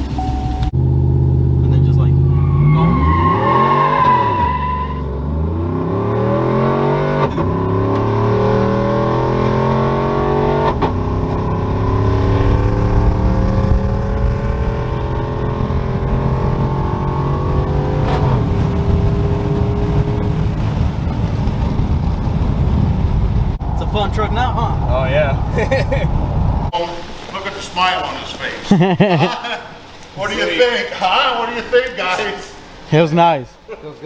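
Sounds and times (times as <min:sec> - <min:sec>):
truck engine accelerating: 0:00.0 - 0:26.7.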